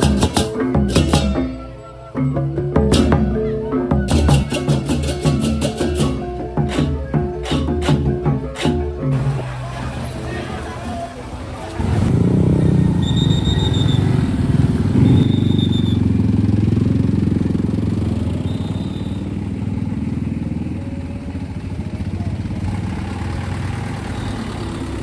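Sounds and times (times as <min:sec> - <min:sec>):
motorcycle engines rumbling: 0:00.0 - 0:25.0.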